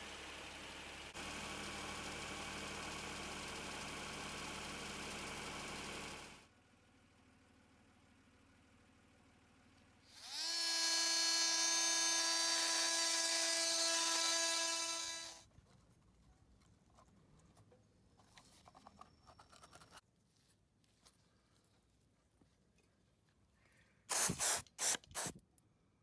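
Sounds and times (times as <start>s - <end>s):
small electric motor spinning: 10.1s - 15.4s.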